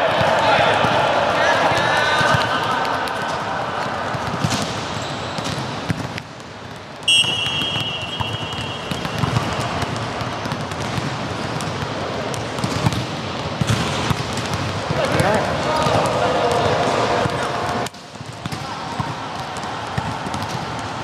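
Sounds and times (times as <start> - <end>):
players' voices: 0.0 - 5.2, 14.6 - 20.9
shrill whistle blast: 7.1 - 9.3.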